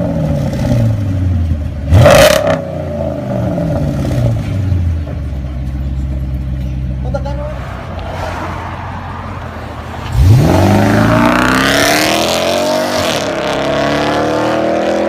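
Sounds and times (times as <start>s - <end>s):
car engine accelerating hard: 9.2s - 15.0s.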